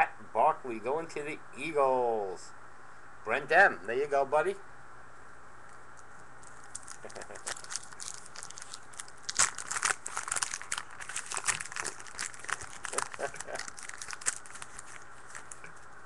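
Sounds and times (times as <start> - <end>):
foil wrapper tearing and crinkling: 6.4 - 16.0.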